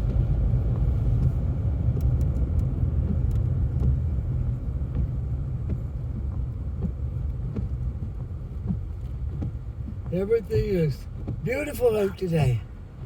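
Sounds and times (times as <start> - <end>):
car engine and road noise: 0.0 - 13.0
faint ticks: 0.8 - 4.0.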